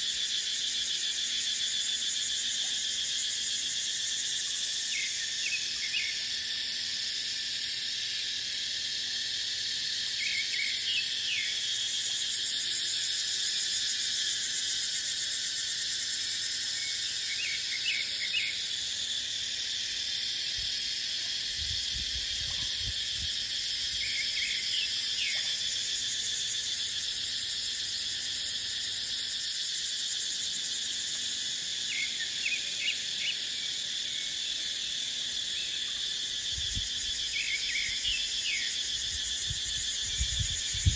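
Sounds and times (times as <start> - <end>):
cicadas buzzing: 0.0 - 40.9
wind rumble on microphone: 21.5 - 23.4, 36.5 - 37.2, 39.0 - 40.9.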